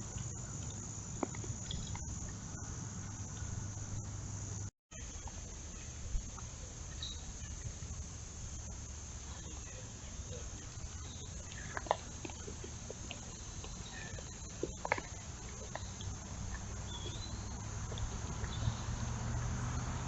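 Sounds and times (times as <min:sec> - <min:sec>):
high-pitched insect chorus: 0:00.0 - 0:20.0
wavering chirp: 0:13.3 - 0:19.1.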